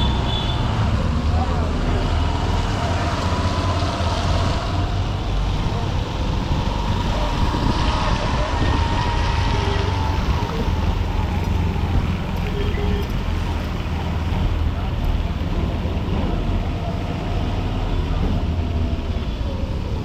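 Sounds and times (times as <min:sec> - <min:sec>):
surrounding traffic noise: 0:00.0 - 0:20.0
wind buffeting microphone: 0:02.6 - 0:17.5.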